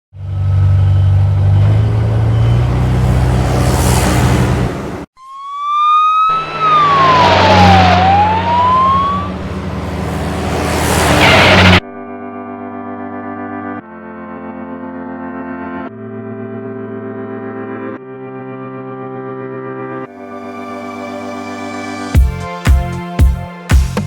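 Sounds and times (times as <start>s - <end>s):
heavy vehicle engine running: 0.1s - 5.1s, 6.4s - 11.8s
rising and dipping siren: 0.6s - 11.9s.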